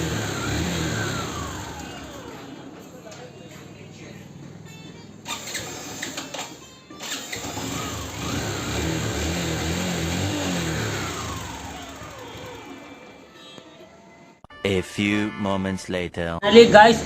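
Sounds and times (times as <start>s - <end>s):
starter motor clicks: 0.0s - 3.3s, 5.2s - 13.2s
motorcycle engine revving: 0.0s - 13.3s.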